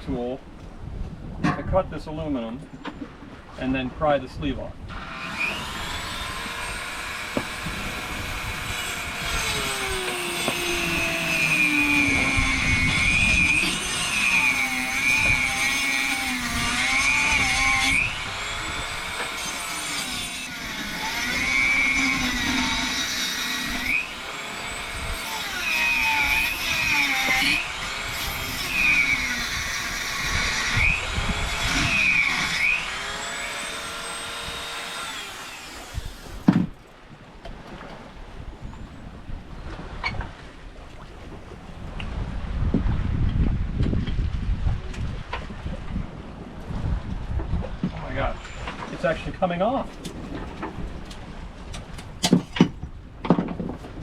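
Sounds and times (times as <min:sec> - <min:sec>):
rotary tool cutting metal: 0:05.0 - 0:36.5.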